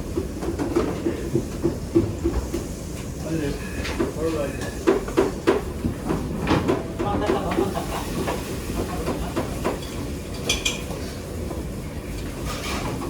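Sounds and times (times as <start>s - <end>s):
utensils and pans clicking: 6.5s - 11.0s.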